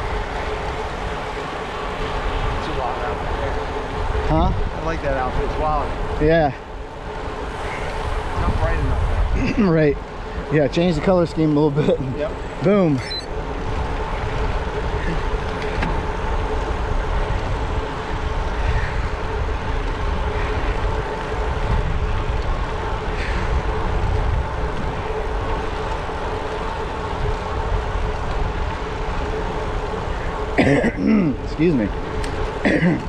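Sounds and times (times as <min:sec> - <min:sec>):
steady hum: 0:00.0 - 0:33.0
tyres rolling on pavement: 0:00.0 - 0:33.0
wind rushing over microphone: 0:00.0 - 0:33.0.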